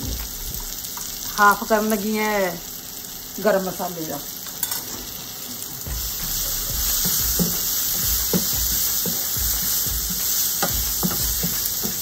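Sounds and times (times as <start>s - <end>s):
masala sizzling in a frying pan: 0.0s - 12.0s
wooden spatula scraping a pan: 6.0s - 12.0s.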